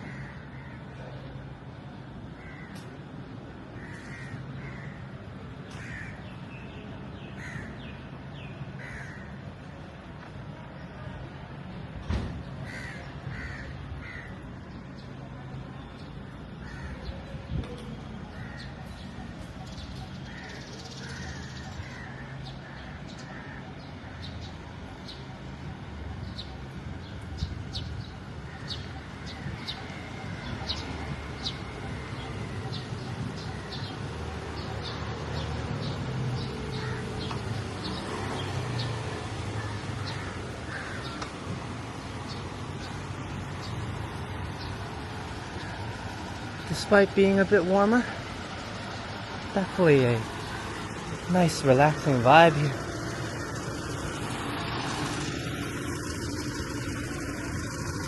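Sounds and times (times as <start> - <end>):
bird calls: 12.6 - 58.0
low outdoor rumble: 39.0 - 58.0.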